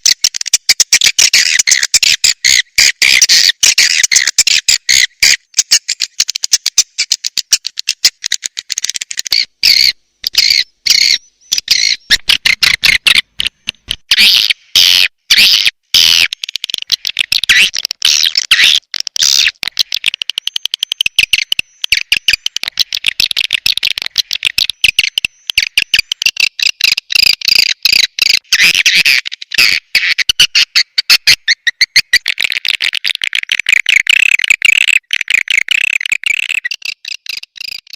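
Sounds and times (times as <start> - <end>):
swiftlets twittering and chirping: 1.0 - 13.2.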